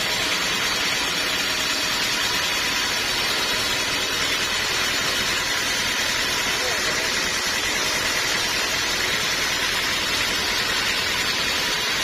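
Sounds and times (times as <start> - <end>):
sawmill machinery hiss: 0.0 - 12.0.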